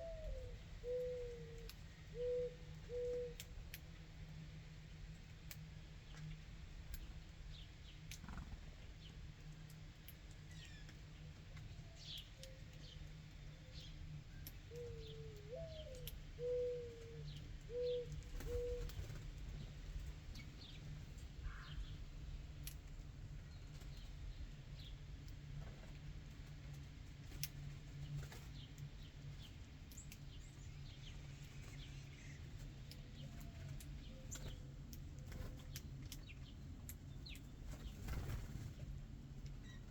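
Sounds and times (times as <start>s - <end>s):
dove cooing: 0.0s - 3.4s, 14.7s - 19.1s
songbirds chirping: 0.0s - 39.9s.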